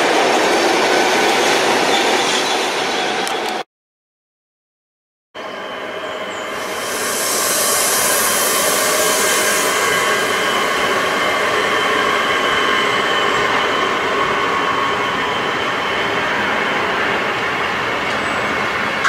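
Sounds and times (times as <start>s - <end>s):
steady high tones: 5.4s - 18.0s
freight train rolling over rails: 5.4s - 19.0s
strong hiss: 6.4s - 14.6s.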